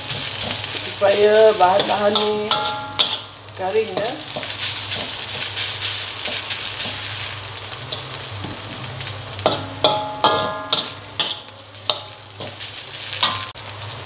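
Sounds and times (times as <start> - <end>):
spatula scraping a wok: 0.0 - 13.8
food sizzling in a wok: 0.0 - 14.0
spatula knocking against wok: 9.4 - 12.2.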